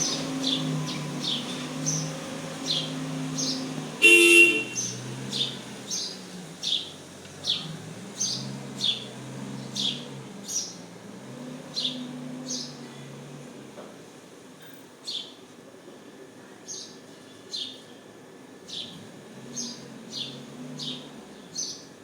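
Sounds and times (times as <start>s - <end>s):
bird chirping: 0.0s - 10.8s
low hum of traffic: 0.0s - 22.0s
vehicle horn toot: 4.0s - 5.0s.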